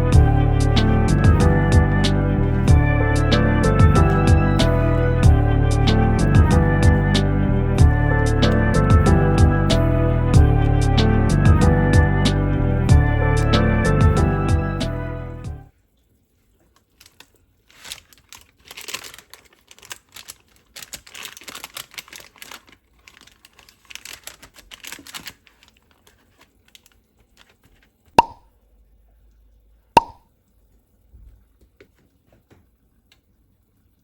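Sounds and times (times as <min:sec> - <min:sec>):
rustling and crackling: 0:16.4 - 0:28.2.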